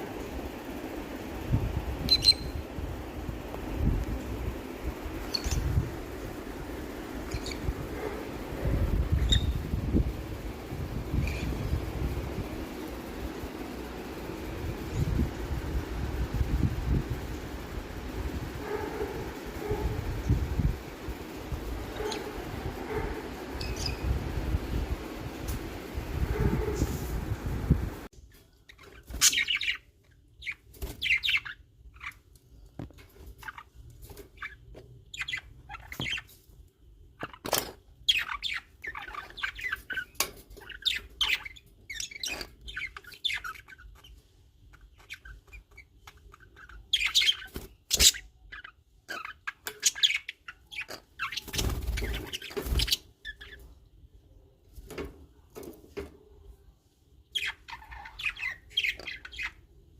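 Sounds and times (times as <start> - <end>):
baby birds chirping: 2.0 - 2.7, 5.2 - 5.8, 9.2 - 9.6, 44.8 - 53.7, 57.4 - 59.7.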